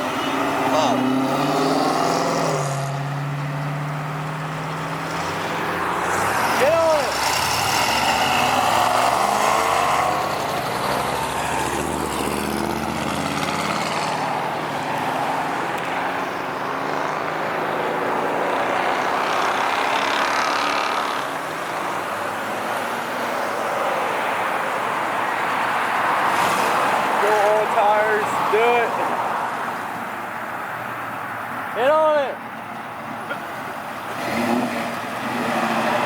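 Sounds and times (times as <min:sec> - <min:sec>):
car engine revving and accelerating: 0:00.0 - 0:21.3, 0:34.1 - 0:36.0
road noise: 0:00.0 - 0:36.0.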